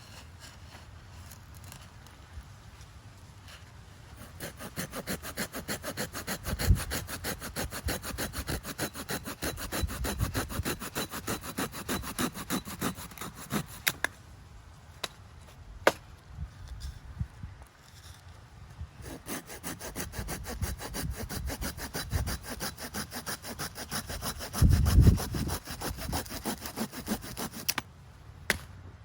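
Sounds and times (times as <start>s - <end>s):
hand saw cutting firewood: 4.2s - 14.1s, 19.0s - 27.9s.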